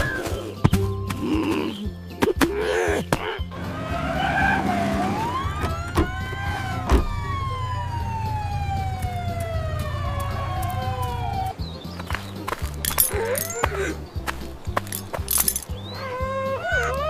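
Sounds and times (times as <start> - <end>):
siren-like gliding tone: 3.8 - 11.5.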